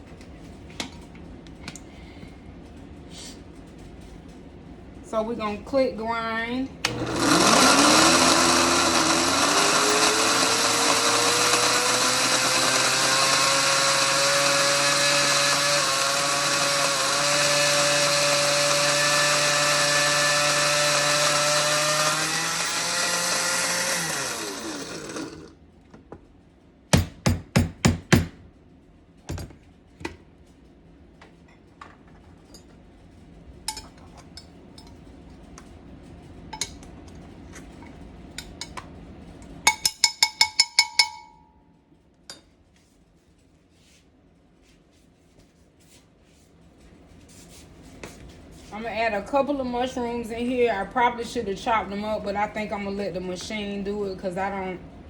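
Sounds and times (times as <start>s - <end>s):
food processor motor grinding: 6.8s - 25.6s.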